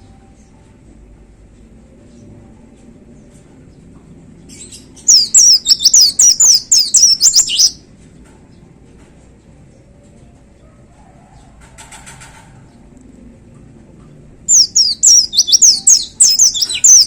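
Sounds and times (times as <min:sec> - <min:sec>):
bird singing high sweeping chirps: 0:04.7 - 0:07.8, 0:14.5 - 0:17.0
faint low rumble: 0:12.7 - 0:17.0.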